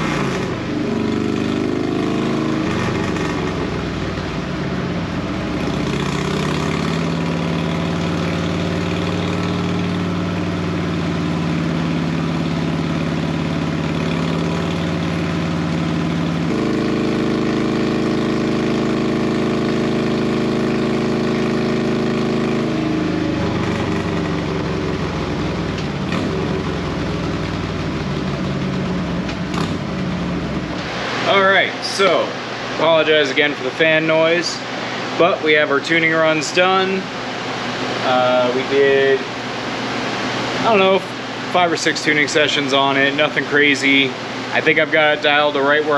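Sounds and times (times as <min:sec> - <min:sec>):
motorcycle engine running: 0:00.0 - 0:33.9
cooling fans blowing: 0:00.0 - 0:45.9.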